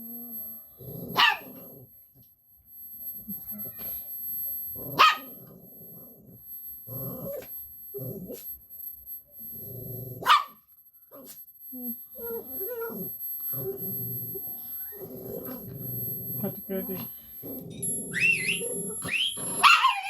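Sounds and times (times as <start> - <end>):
dog growling: 0.8 - 1.9, 4.8 - 8.4, 9.6 - 10.3, 11.2 - 20.0
dog barking: 1.2 - 1.5, 5.0 - 5.4, 10.2 - 10.6, 19.6 - 20.0.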